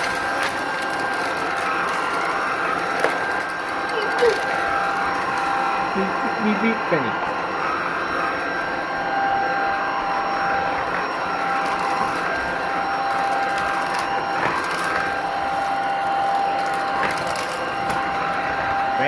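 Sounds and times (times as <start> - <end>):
stick vacuum whining: 0.0 - 19.0.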